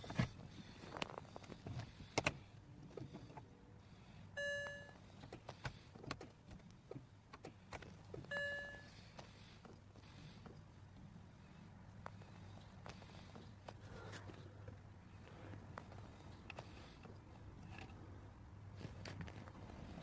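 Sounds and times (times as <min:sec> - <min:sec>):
short electronic beeps: 0:04.4 - 0:05.0, 0:08.3 - 0:09.0.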